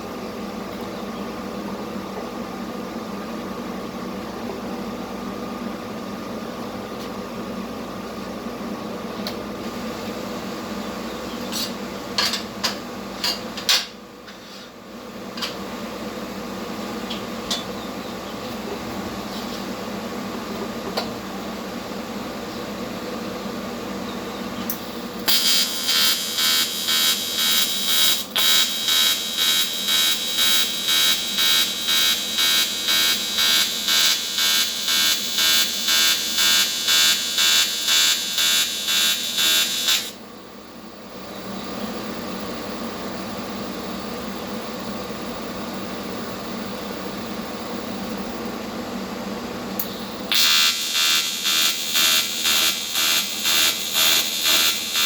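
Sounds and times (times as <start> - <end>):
welding machine hum: 24.6 - 40.2, 49.8 - 55.0
pulsing welding arc buzz: 24.7 - 40.2, 49.8 - 55.0.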